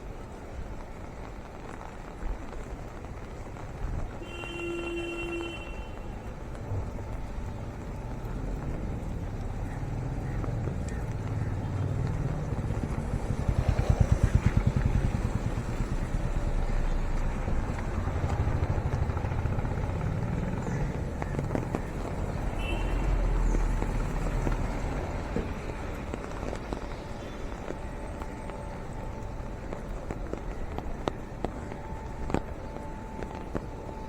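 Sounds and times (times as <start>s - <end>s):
car horn toot: 4.2s - 6.0s, 22.6s - 23.2s
road traffic passing: 4.2s - 34.0s
motorcycle engine passing: 11.9s - 16.3s.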